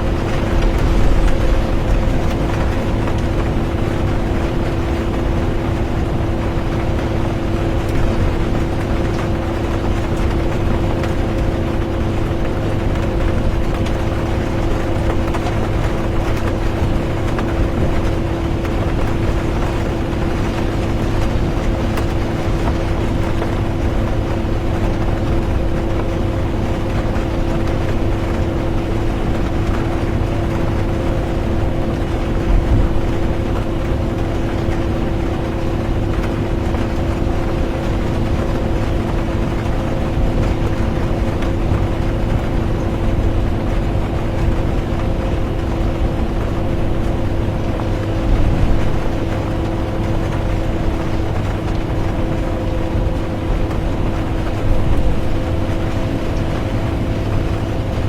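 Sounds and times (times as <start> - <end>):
road rumble: 0.0 - 7.0
bus engine drone: 0.0 - 58.0.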